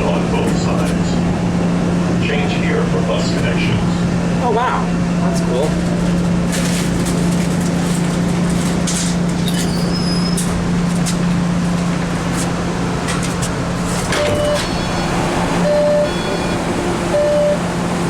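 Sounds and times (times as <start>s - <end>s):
subway car low hum: 0.0s - 18.0s
wheels rumbling on track: 0.0s - 18.0s
short electronic beeps: 14.2s - 17.7s.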